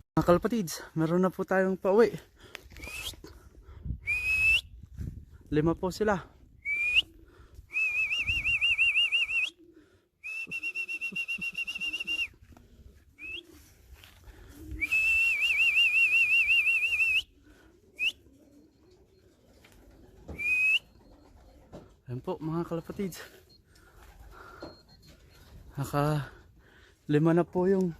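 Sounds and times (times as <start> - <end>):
long high whistles: 7.7 - 9.6, 10.2 - 12.3.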